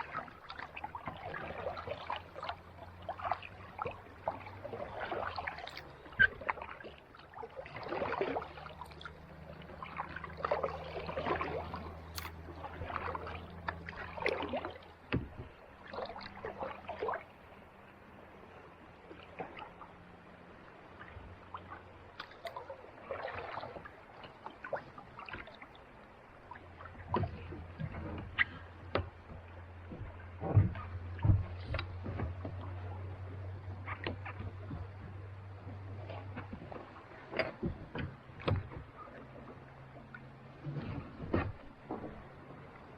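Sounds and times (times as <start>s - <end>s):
low steady hum: 0.0s - 42.9s
paddle splashing water: 0.0s - 42.9s.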